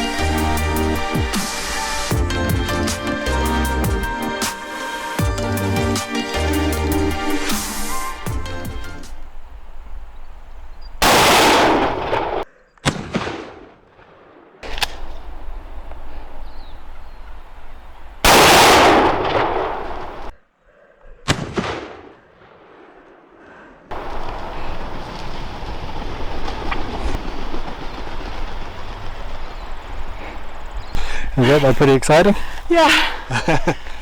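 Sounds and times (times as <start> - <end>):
shotgun blasts: 11.0 - 15.2, 18.2 - 20.3, 21.2 - 23.1.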